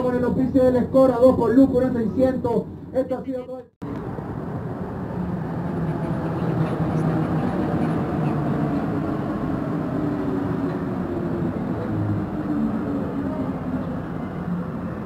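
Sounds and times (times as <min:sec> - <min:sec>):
metro train rumbling past: 0:03.8 - 0:15.0
train motor hum: 0:03.9 - 0:15.0.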